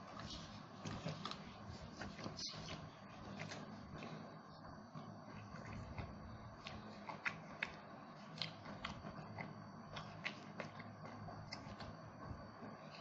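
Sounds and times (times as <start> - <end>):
person chewing: 5.4 - 11.9.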